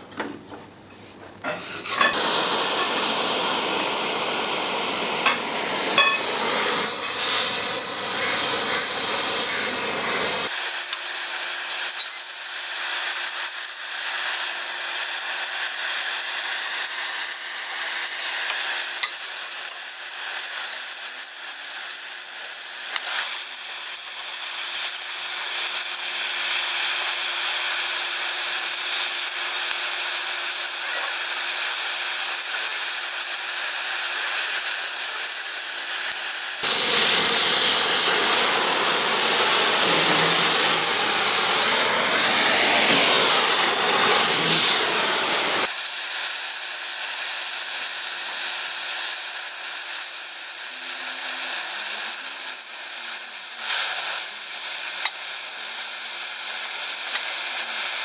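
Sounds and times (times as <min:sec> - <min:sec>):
rough loud hiss: 0:01.4 - 0:11.1, 0:36.4 - 0:45.8
gas cutting torch hissing: 0:01.4 - 0:58.0.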